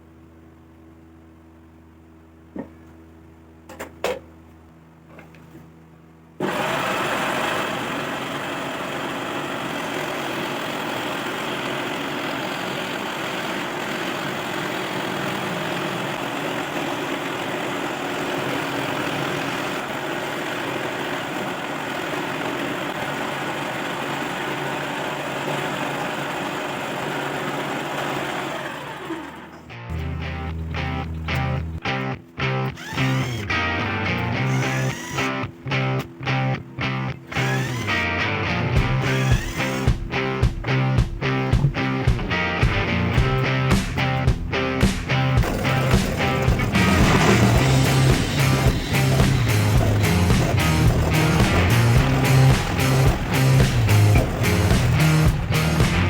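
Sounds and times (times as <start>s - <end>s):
electric jigsaw running: 6.4s - 29.6s, 32.8s - 33.5s, 34.4s - 35.4s, 37.3s - 38.1s, 38.8s - 40.1s, 45.4s - 56.0s.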